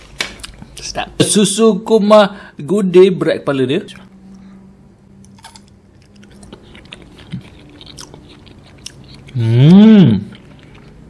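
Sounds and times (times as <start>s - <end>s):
chewing jelly: 5.3s - 11.0s.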